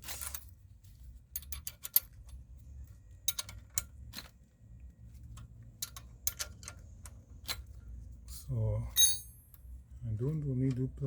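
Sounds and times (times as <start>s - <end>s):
spanner clicking on bolt: 5.8s - 6.8s.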